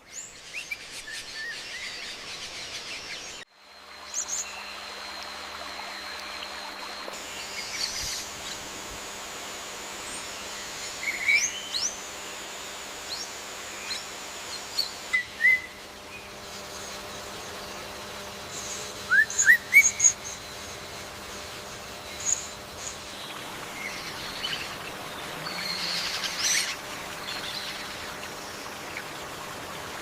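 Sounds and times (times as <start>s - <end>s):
steady background hiss: 0.0s - 30.0s
birds chirping: 13.2s - 30.0s.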